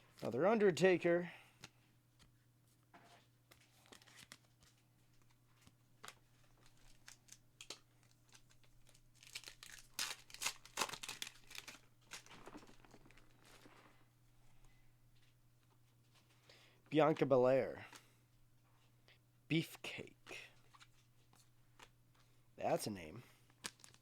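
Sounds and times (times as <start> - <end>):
wrapper crinkling: 6.1 - 14.0, 23.6 - 24.0
foil card pack tearing: 6.6 - 14.0, 23.6 - 24.0.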